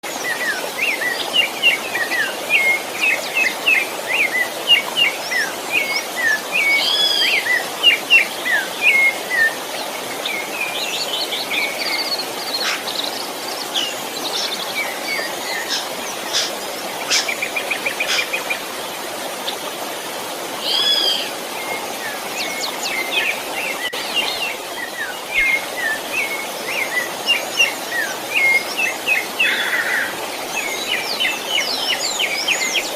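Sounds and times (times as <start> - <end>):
flowing river water: 0.0 - 32.9
birds singing and chirping: 0.1 - 18.9, 20.6 - 32.9.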